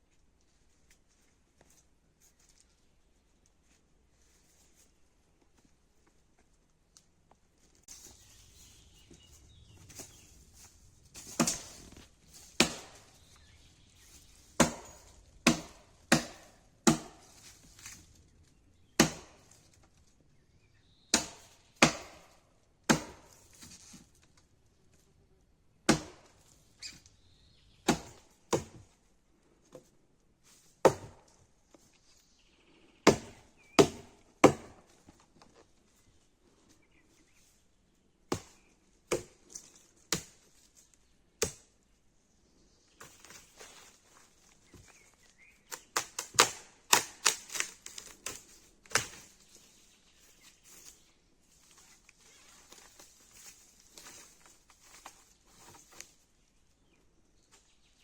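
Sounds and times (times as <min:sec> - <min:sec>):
axe chopping wood: 0:11.3 - 0:11.8, 0:12.5 - 0:13.1, 0:14.6 - 0:17.4, 0:19.0 - 0:19.5, 0:21.1 - 0:23.4, 0:25.9 - 0:26.3, 0:27.8 - 0:28.8, 0:30.8 - 0:31.3, 0:33.1 - 0:34.9, 0:38.3 - 0:39.4, 0:40.1 - 0:40.4, 0:45.7 - 0:49.2.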